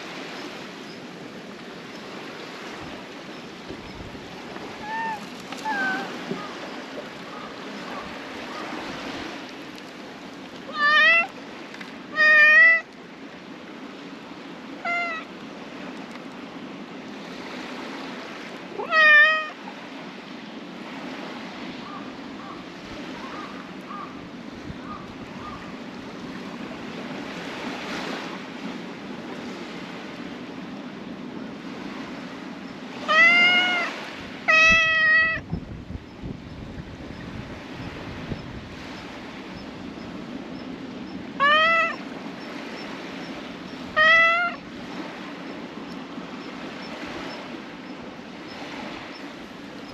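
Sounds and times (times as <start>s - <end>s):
cat meowing: 4.8s - 6.2s, 10.7s - 11.3s, 12.1s - 12.9s, 14.8s - 15.3s, 18.8s - 19.6s, 33.0s - 35.5s, 41.4s - 42.0s, 43.9s - 44.6s.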